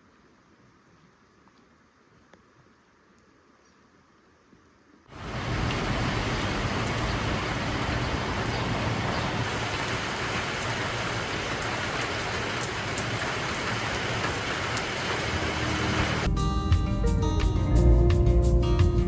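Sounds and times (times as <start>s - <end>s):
heavy rain falling: 5.1s - 16.3s
raindrop ticks: 5.1s - 16.3s.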